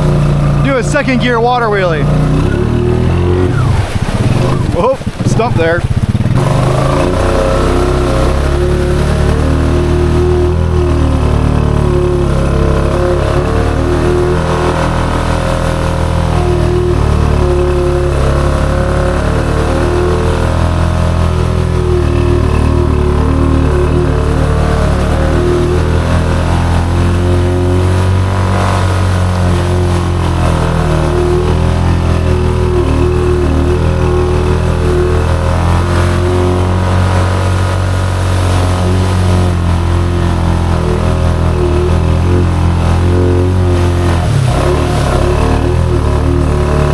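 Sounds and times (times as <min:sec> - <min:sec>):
atv engine under load: 0:00.0 - 0:46.9.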